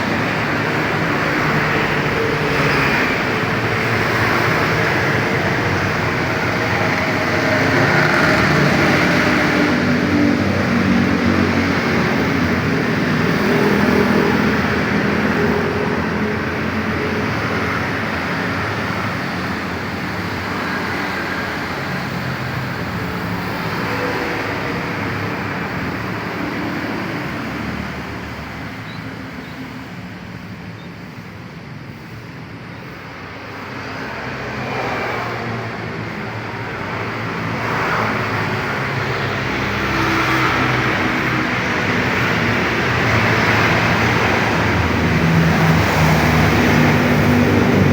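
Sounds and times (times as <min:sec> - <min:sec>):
two-stroke motorcycle engine revving: 0:00.1 - 0:14.7.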